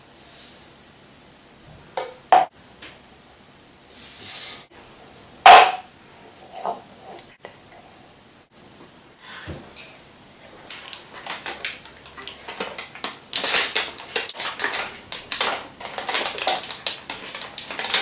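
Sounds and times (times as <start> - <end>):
hands mixing gritty food in bowl: 10.4 - 18.0.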